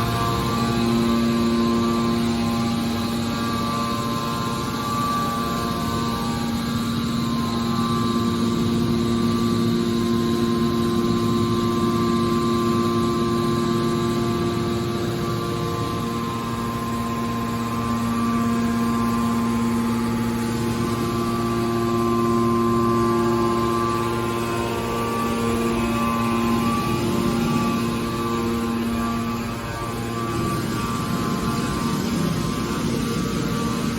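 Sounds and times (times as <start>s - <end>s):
electric motor and pump humming: 0.0s - 33.9s.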